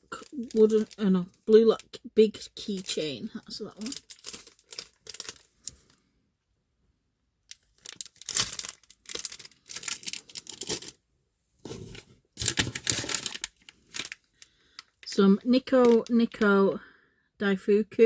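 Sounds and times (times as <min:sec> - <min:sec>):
plastic packaging crinkling and tearing: 0:00.0 - 0:01.3, 0:02.6 - 0:05.8, 0:07.5 - 0:10.9, 0:11.7 - 0:16.4.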